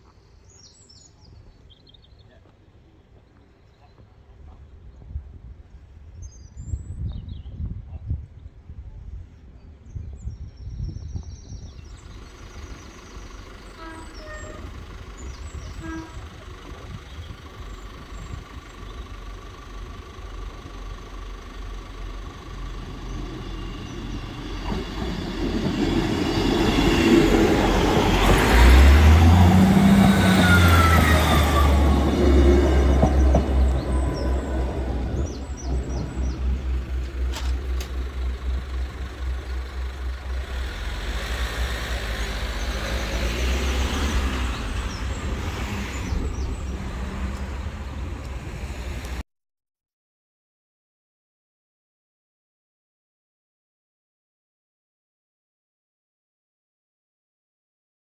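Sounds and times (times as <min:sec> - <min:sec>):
diesel train passing: 0:11.5 - 0:49.2.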